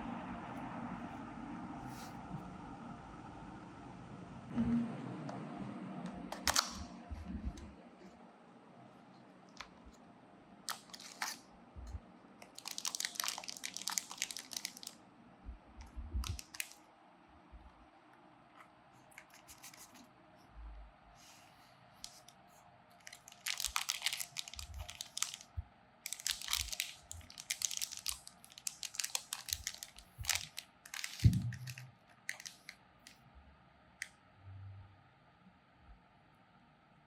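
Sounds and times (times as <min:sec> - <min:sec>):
packaging crinkling and tearing: 0:10.7 - 0:11.4, 0:12.4 - 0:15.0, 0:16.2 - 0:16.8, 0:23.0 - 0:25.5, 0:26.1 - 0:32.8.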